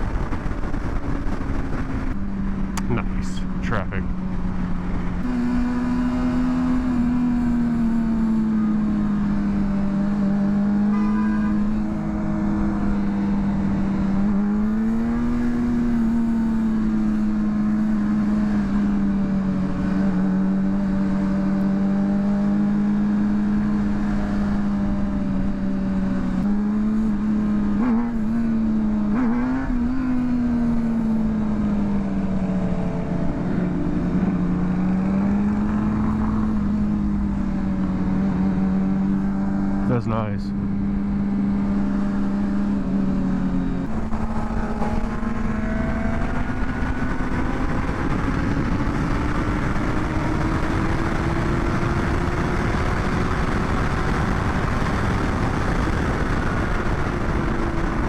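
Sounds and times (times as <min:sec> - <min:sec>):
wind and road noise: 0:00.0 - 0:58.0
motorcycle engine running: 0:22.9 - 0:58.0.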